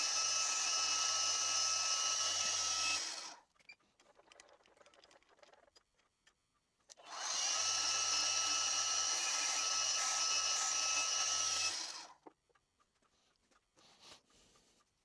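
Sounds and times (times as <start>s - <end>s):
milling machine spindle whining: 0.0s - 3.3s, 7.2s - 12.1s.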